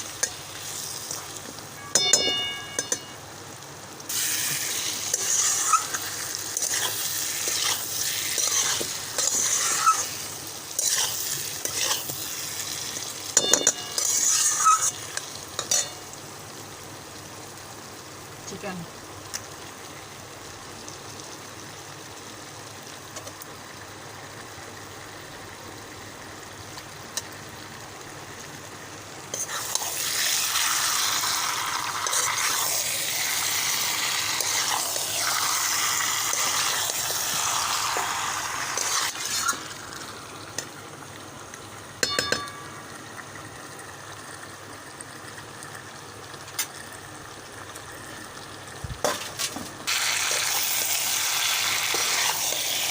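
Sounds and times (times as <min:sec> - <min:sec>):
chicken sizzling in a pan: 0:00.0 - 0:52.9
spoon clinking against pan: 0:01.8 - 0:03.2, 0:13.4 - 0:14.9, 0:15.6 - 0:16.0, 0:42.0 - 0:42.8.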